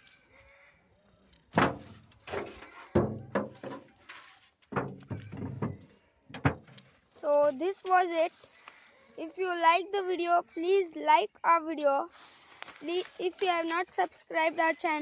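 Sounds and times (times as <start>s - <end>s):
wooden box knocks and thuds: 1.6s - 3.9s, 4.7s - 6.8s.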